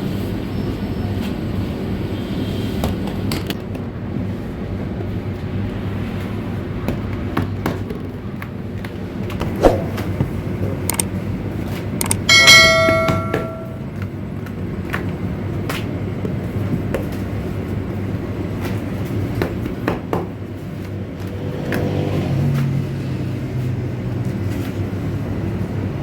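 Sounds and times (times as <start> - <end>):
metal struck ringing: 12.3 - 13.9.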